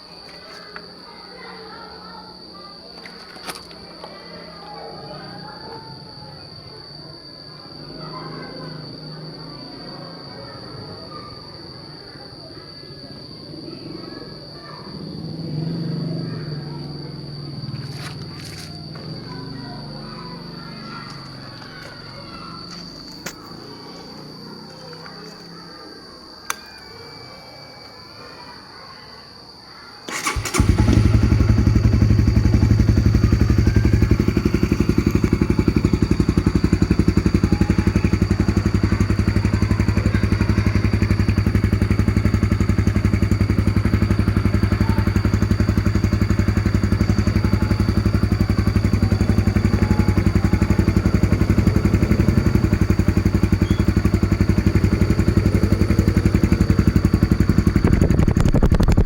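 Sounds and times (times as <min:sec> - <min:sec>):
motorcycle engine idling: 0:30.1 - 0:59.0.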